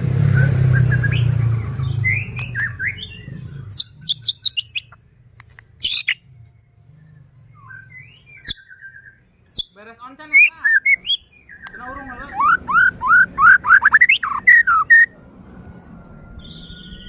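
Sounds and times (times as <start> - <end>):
bird singing whistled notes: 0.3 - 15.1, 15.7 - 17.0
bird clicks: 4.7 - 6.1.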